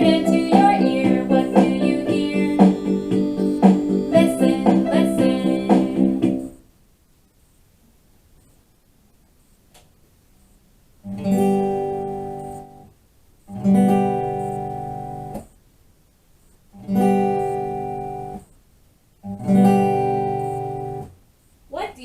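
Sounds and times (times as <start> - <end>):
guitar chord strummed: 0.0 - 6.5.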